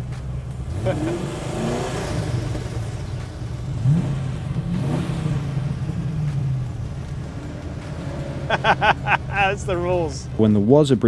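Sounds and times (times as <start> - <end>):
car engine revving: 0.0 - 10.7.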